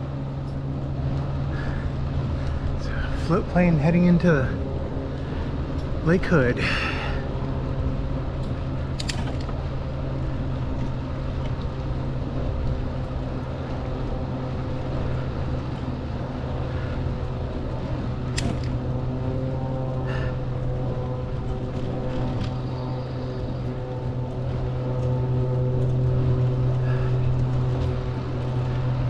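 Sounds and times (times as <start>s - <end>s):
propeller engine drone: 0.0s - 29.0s.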